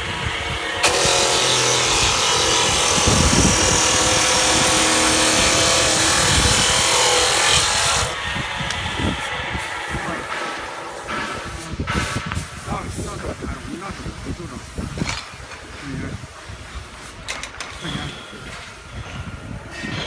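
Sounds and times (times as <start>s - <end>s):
drill motor running: 0.0s - 11.2s
mortising drill cutting wood: 0.6s - 11.0s.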